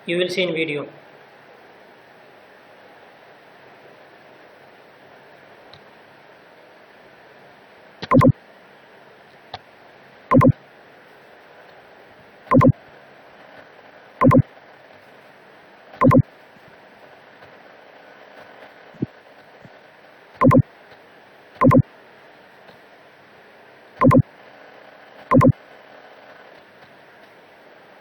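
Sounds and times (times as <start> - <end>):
short loud pitched tones: 8.1 - 8.3, 10.3 - 10.6, 12.5 - 12.7, 14.2 - 14.4, 16.0 - 16.2, 20.4 - 20.6, 21.6 - 21.8, 24.0 - 24.2, 25.3 - 25.5.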